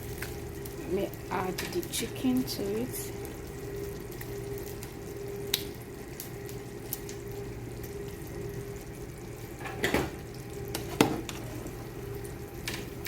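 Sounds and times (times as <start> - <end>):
stew bubbling in a pot: 0.0 - 13.0.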